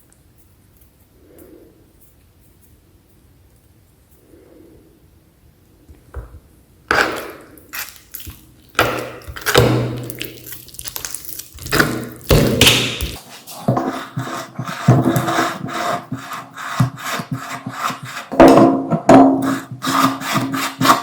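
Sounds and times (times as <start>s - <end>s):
meat grinder knocking and scraping: 8.7s - 10.3s, 10.9s - 21.0s.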